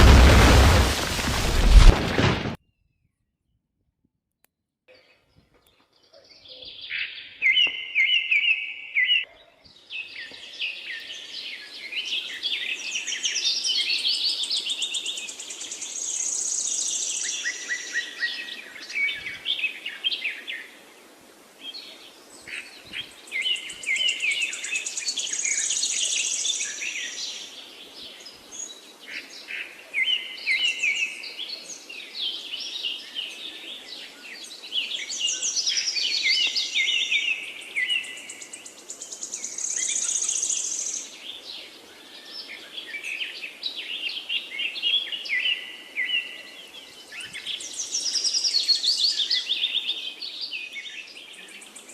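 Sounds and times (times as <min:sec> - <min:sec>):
birds chirping and singing: 0:04.9 - 0:19.8
faint background hiss: 0:09.7 - 0:51.9.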